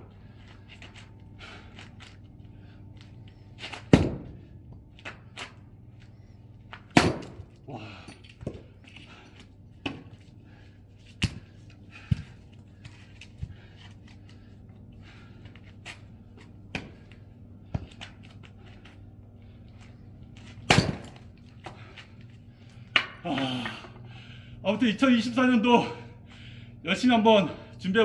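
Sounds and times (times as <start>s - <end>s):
axe splitting firewood: 3.6s - 4.3s, 6.8s - 7.6s, 20.5s - 21.8s.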